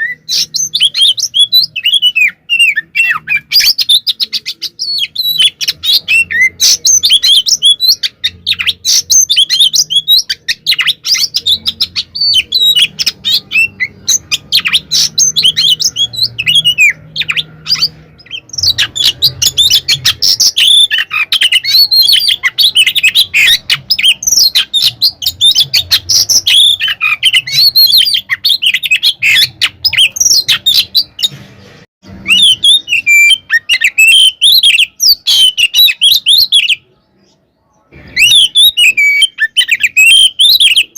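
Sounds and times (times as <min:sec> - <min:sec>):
bird singing rapid varied song: 0:00.0 - 0:31.3.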